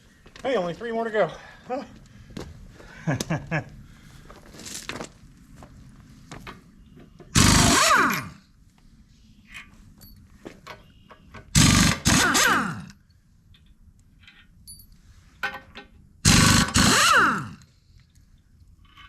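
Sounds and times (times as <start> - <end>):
impact wrench bursts: 7.3 - 8.4, 11.5 - 12.9, 16.2 - 17.6
light metal clinks: 10.0 - 10.9, 13.5 - 15.0.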